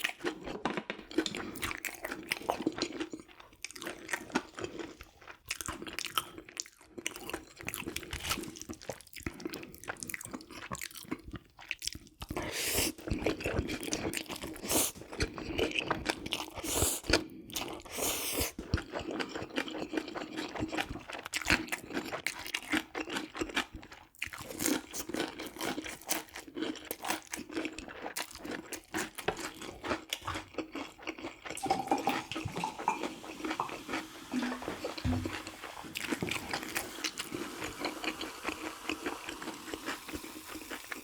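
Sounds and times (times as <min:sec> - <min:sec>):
person chewing crunchy food: 0:00.0 - 0:41.0.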